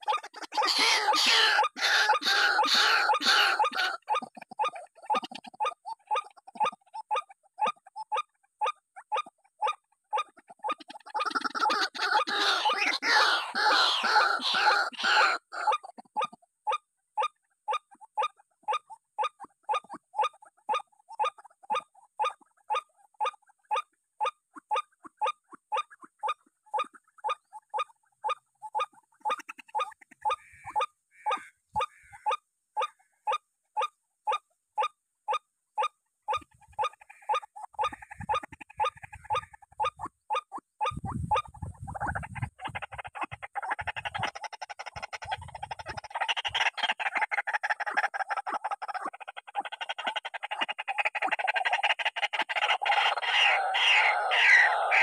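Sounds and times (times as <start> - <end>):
waterhen calling: 0.0 - 4.5, 10.7 - 16.0, 28.8 - 33.9, 36.3 - 55.0.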